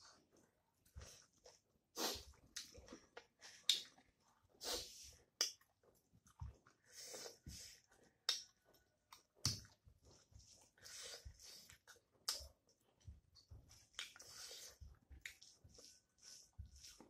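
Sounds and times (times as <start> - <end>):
fingers mixing rice: 0.0 - 17.0
wet chewing: 0.1 - 17.0
lip smacks: 2.0 - 4.8, 8.2 - 9.8, 10.8 - 12.7, 13.8 - 15.4
sharp mouth clicks: 12.2 - 12.5.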